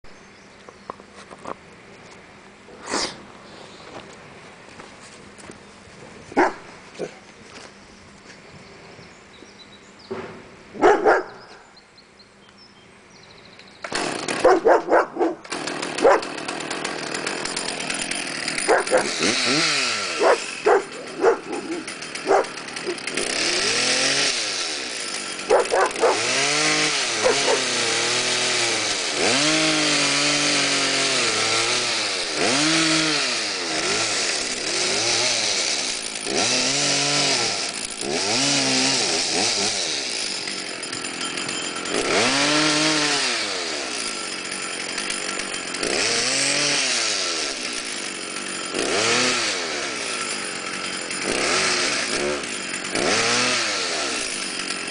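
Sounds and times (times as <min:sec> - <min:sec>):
chainsaw revving cutting wood: 0:13.8 - 0:54.9.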